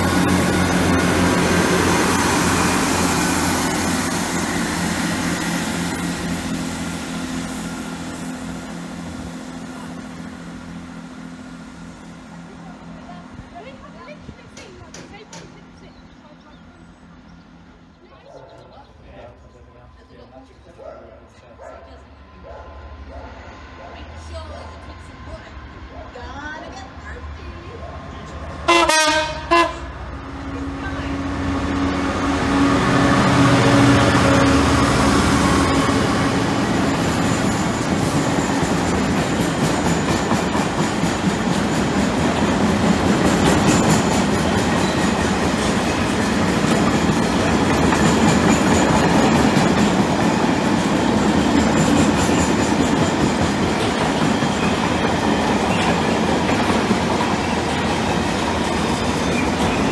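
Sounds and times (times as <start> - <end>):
diesel engine rumbling past: 0.0 - 20.5, 22.0 - 39.7
wheels clicking over rail joints: 14.2 - 16.0
locomotive horn blasts: 28.7 - 30.0
freight wagons rolling by: 35.5 - 59.9.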